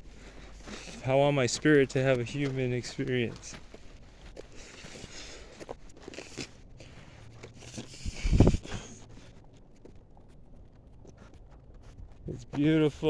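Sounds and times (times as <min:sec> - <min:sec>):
footsteps crunching through twigs: 0:00.0 - 0:09.3.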